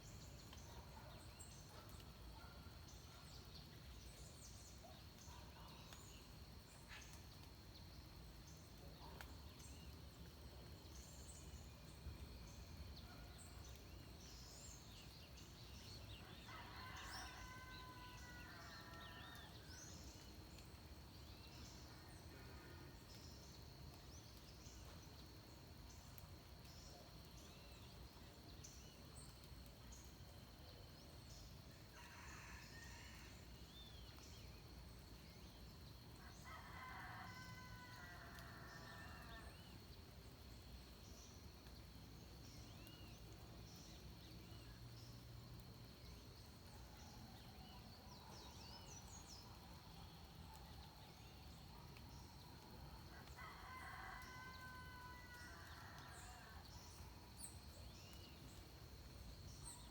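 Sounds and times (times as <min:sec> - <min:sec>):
faint rooster crowing: 0:16.2 - 0:19.7, 0:31.9 - 0:33.5, 0:36.2 - 0:39.6, 0:52.9 - 0:57.0.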